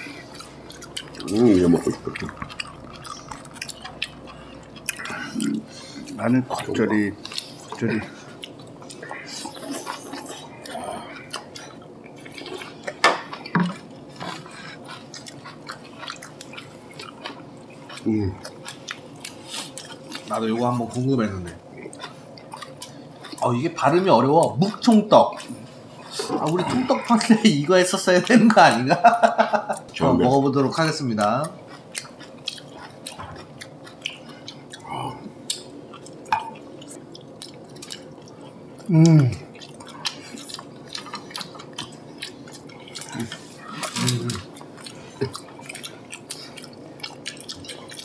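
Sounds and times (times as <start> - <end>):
person chewing: 0.0 - 28.9, 31.4 - 48.0
wet mouth clicks and smacks: 35.5 - 36.2.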